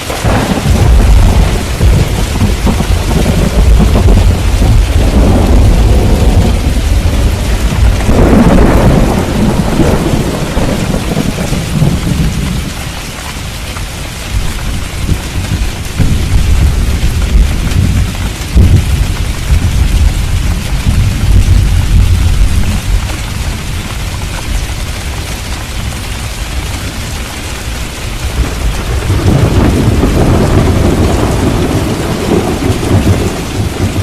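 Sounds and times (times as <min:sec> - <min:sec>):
rolling thunder: 0:00.0 - 0:12.8, 0:14.3 - 0:23.8, 0:28.2 - 0:34.0
steady rain: 0:00.0 - 0:34.0.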